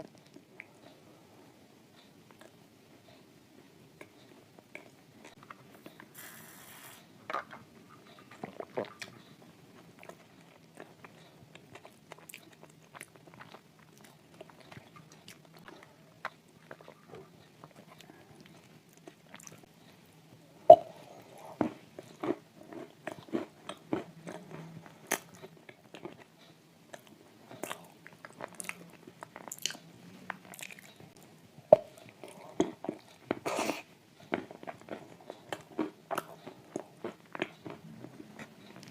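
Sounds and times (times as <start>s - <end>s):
chewing: 7.3s - 20.0s, 21.0s - 31.3s, 31.9s - 38.9s.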